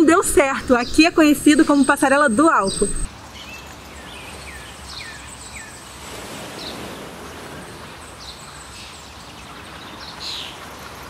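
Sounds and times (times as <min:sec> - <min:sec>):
small birds chirping: 0:00.0 - 0:05.8
steady background noise: 0:00.0 - 0:10.0.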